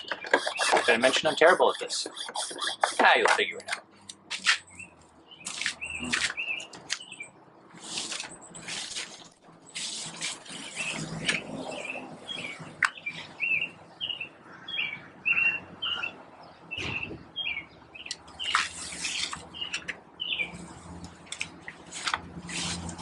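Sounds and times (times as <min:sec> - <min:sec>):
garden sprayer hissing: 0:00.1 - 0:03.4.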